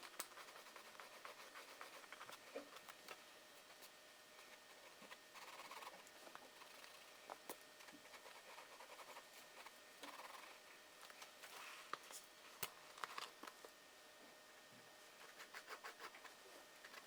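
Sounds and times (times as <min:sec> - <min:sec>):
pencil scratching on paper: 0:00.0 - 0:02.9, 0:03.6 - 0:07.1, 0:07.8 - 0:10.6, 0:15.2 - 0:16.3.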